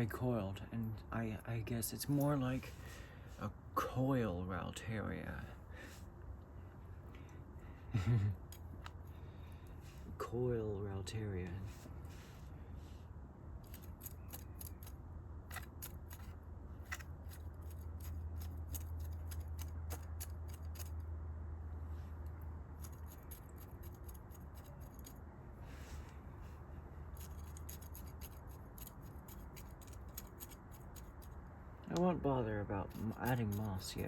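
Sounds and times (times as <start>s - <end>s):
steady low hum: 0.0s - 34.0s
potting soil crackling: 13.6s - 21.1s, 22.7s - 25.2s, 27.0s - 34.0s.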